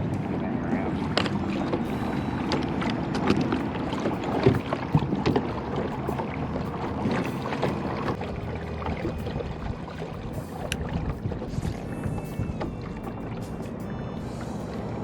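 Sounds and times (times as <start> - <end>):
water sloshing around kayak: 0.0 - 15.0
wind on microphone: 0.0 - 15.0.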